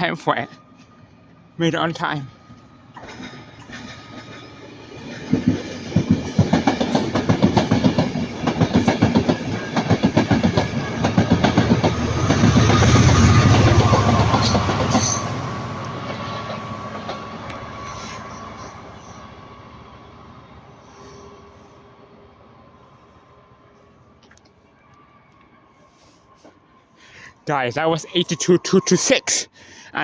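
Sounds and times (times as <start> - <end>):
deep train rumble: 0.0 - 24.2
train wheels clattering over rail joints: 5.1 - 13.2.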